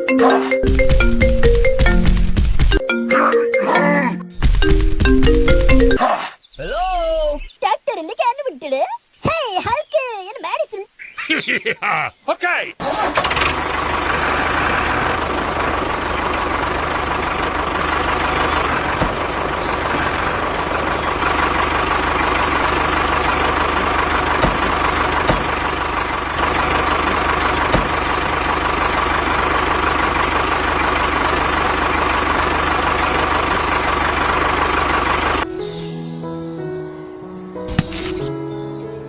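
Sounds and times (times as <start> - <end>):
tractor engine running: 0.0 - 3.0, 4.3 - 6.0, 12.8 - 36.0, 37.7 - 38.3.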